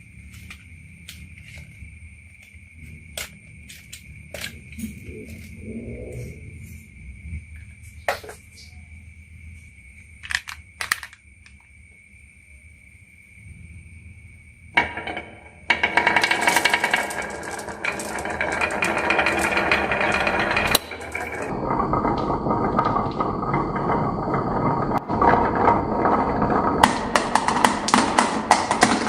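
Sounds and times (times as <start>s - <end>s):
marbles clattering on wooden run: 10.2s - 11.6s, 14.8s - 29.0s.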